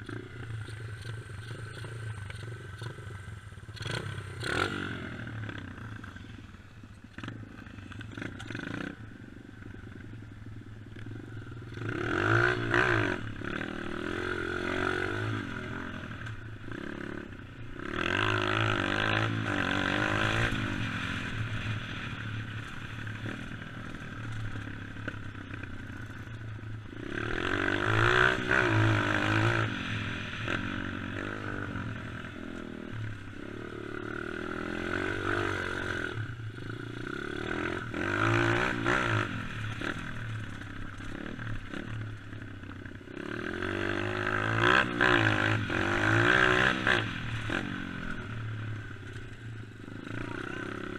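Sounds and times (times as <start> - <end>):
dirt bike engine revving: 0.0 - 6.2, 11.7 - 42.4, 43.1 - 50.9.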